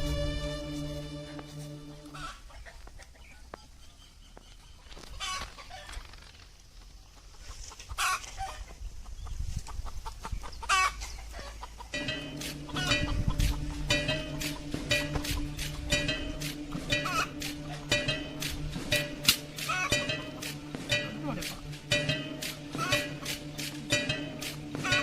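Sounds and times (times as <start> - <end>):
background music: 0.0 - 2.8, 11.9 - 25.0
chicken clucking: 2.1 - 6.0, 6.9 - 25.0
scratchy sounds: 12.0 - 25.0.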